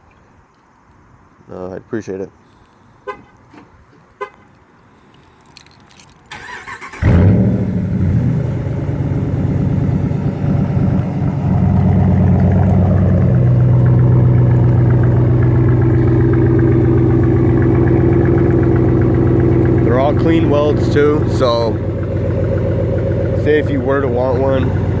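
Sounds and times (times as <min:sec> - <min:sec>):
engine idling loudly: 0:07.6 - 0:25.0.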